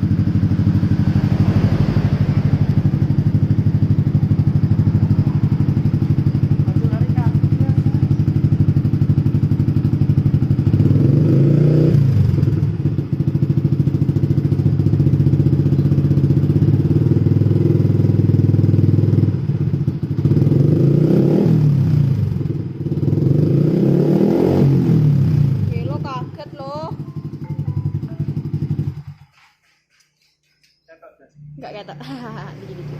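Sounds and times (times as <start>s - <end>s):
engine throttle blips: 0.0s - 20.5s, 24.2s - 29.6s
motorcycle engine idling: 0.0s - 29.5s.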